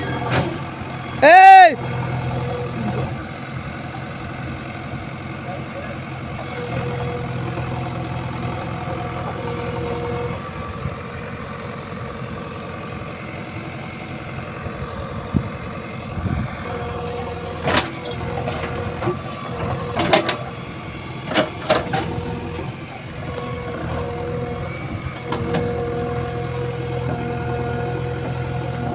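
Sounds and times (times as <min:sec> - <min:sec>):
diesel engine running: 0:00.0 - 0:28.9
metal knocks and clanks: 0:17.6 - 0:20.6, 0:21.2 - 0:22.2.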